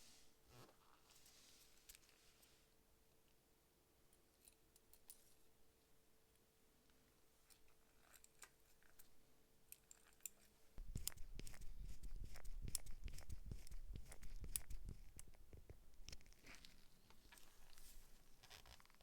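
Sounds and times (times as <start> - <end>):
clicks and taps of objects handled: 9.7 - 17.5.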